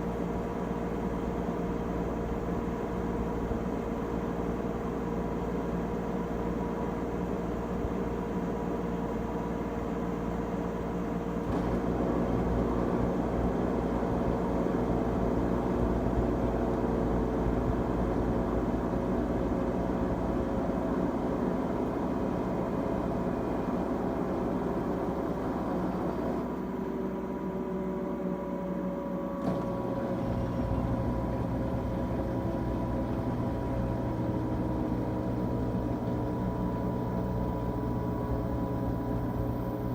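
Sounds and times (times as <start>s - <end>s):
washing machine whirring: 11.4s - 39.9s.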